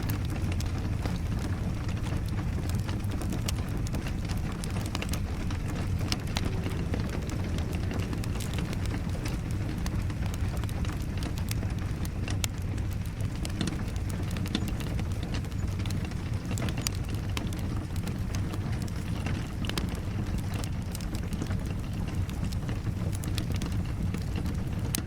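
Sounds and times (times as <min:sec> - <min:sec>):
fire crackling and popping: 0:00.0 - 0:25.0
steady rain: 0:00.0 - 0:25.0.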